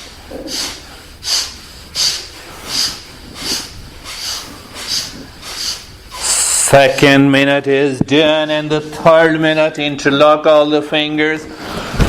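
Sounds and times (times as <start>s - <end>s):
forceful breathing through nose: 0.0s - 6.6s.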